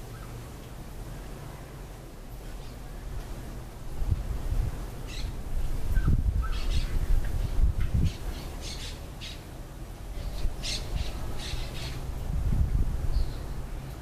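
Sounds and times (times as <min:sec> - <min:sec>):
birds calling: 0:05.0 - 0:09.5, 0:10.1 - 0:12.0.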